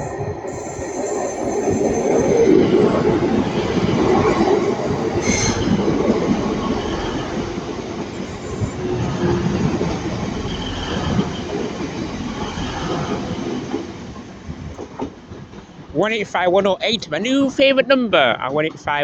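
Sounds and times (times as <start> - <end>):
wheel squeal: 0.0 - 13.4
diesel trains rumbling past: 0.0 - 17.5.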